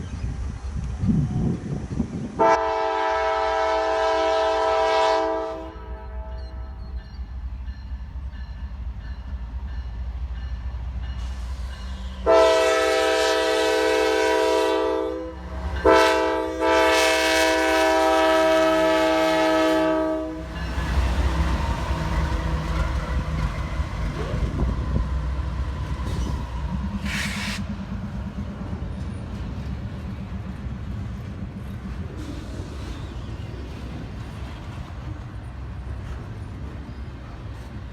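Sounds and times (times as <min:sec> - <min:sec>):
train wheels on rails: 0:00.0 - 0:37.9
locomotive air horn blasts: 0:02.4 - 0:06.4, 0:12.2 - 0:20.6.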